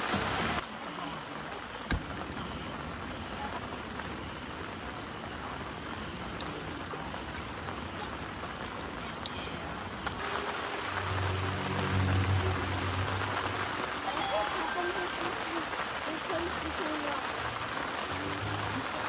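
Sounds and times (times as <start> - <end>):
steady rain hiss: 0.0 - 19.0
faint drip ticks: 5.4 - 10.2.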